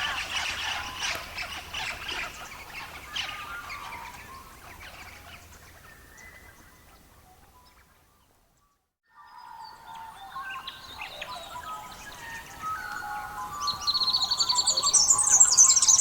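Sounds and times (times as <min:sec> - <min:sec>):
birds chirping: 0:00.0 - 0:08.7, 0:09.4 - 0:16.0.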